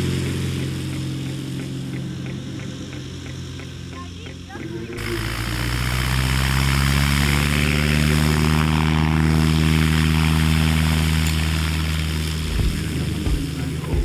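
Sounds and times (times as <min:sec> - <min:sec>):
propeller airplane engine droning: 0:00.0 - 0:14.0.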